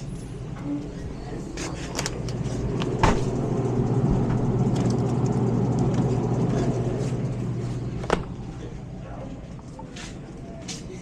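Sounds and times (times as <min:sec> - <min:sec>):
vehicle engine humming: 0:02.0 - 0:10.4.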